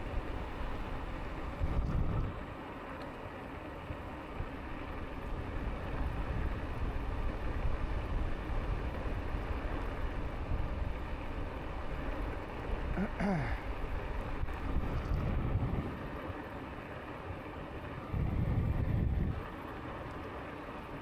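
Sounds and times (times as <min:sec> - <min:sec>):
wind rushing over microphone: 0:00.0 - 0:02.4, 0:13.7 - 0:16.1, 0:18.0 - 0:19.5.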